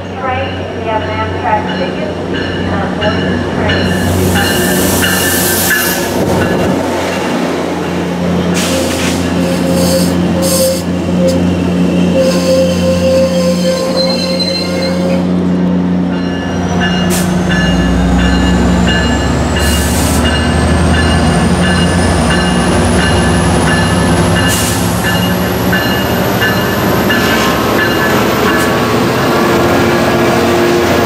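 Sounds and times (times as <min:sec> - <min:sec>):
locomotive bell ringing: 0:00.0 - 0:08.0, 0:16.0 - 0:29.7
diesel locomotive droning: 0:00.0 - 0:31.0.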